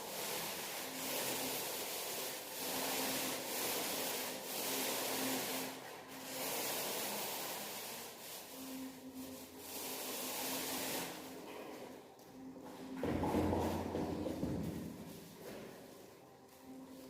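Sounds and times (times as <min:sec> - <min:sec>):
paint roller rasping on wall: 0:00.0 - 0:12.0, 0:13.0 - 0:17.0.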